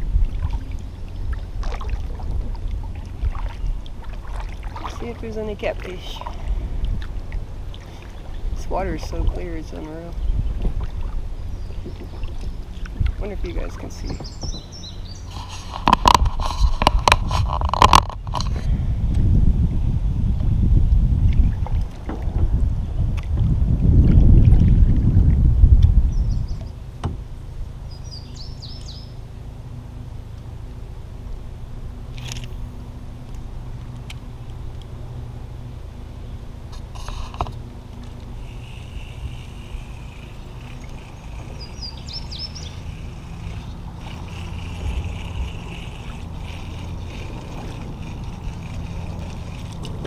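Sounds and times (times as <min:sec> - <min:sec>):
water and wind rumble: 0:00.0 - 0:50.0
small bird chirping: 0:13.9 - 0:15.8, 0:27.9 - 0:29.2, 0:38.4 - 0:47.4
faint steady hum: 0:22.5 - 0:50.0.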